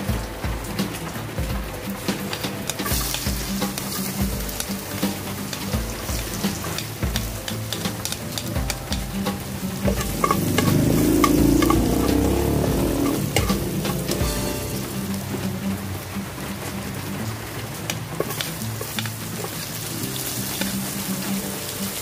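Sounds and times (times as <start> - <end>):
garlic sizzling in hot oil: 0.0 - 22.0
metal tongs stirring in pan: 2.2 - 15.2, 18.2 - 22.0.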